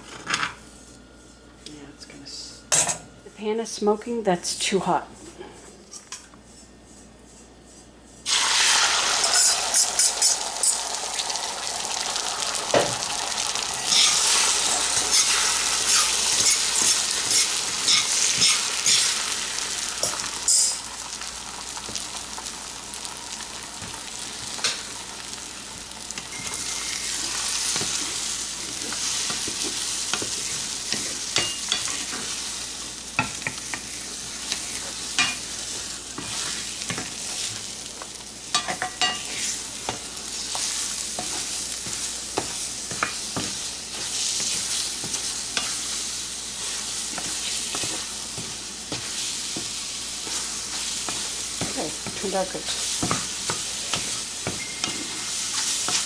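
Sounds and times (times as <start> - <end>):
eggs sizzling in a pan: 8.2 - 56.0
spatula scraping a pan: 13.8 - 19.4, 26.1 - 32.6, 33.2 - 37.7, 38.5 - 56.0.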